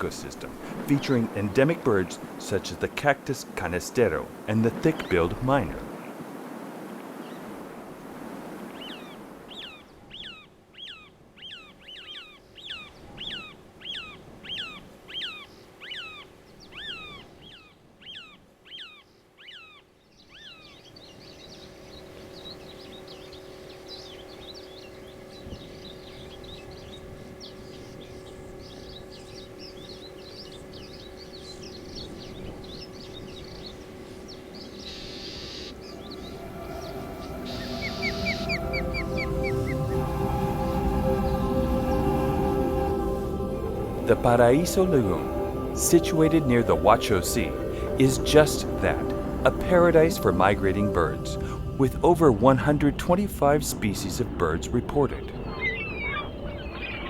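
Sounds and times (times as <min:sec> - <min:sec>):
steady low hum: 0:00.0 - 0:05.9, 0:21.1 - 0:55.5
songbird whistling: 0:08.8 - 0:52.0, 0:55.4 - 0:57.0
high chirps: 0:34.4 - 0:53.0.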